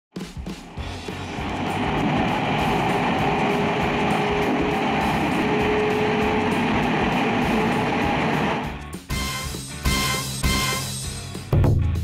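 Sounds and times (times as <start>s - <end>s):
train rumble and hiss from inside: 0.4s - 8.7s.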